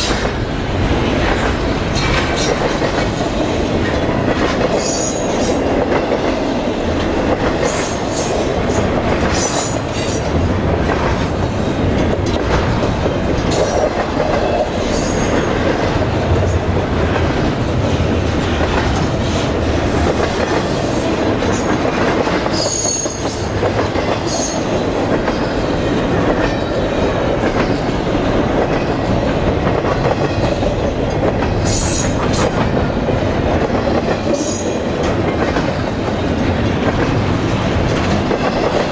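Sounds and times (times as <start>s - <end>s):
freight train wheels rumbling: 0.0s - 38.9s
train wheel squeals: 4.8s - 5.6s, 22.5s - 23.6s, 24.2s - 25.6s, 31.6s - 32.6s, 34.3s - 34.8s.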